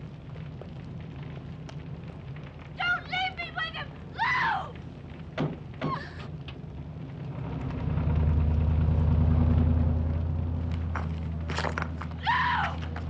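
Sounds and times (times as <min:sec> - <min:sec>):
vehicle engine driving off: 0:06.6 - 0:12.2.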